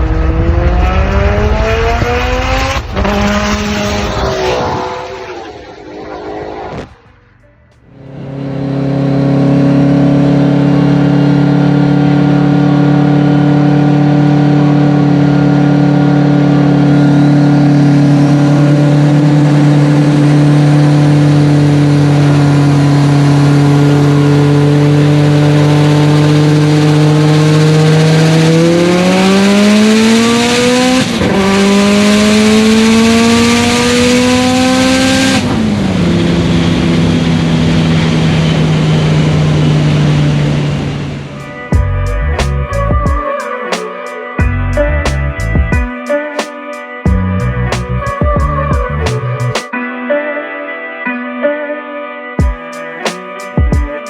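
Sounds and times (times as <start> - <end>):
car engine accelerating: 0.0 - 43.0.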